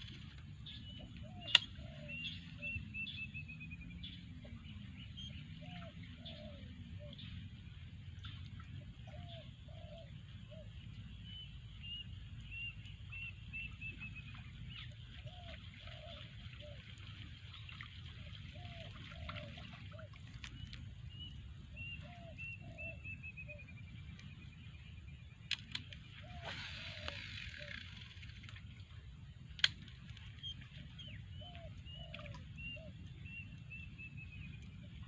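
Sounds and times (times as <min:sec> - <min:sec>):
birds calling: 0:00.7 - 0:04.2, 0:25.5 - 0:28.4
sharp click: 0:01.4 - 0:01.8.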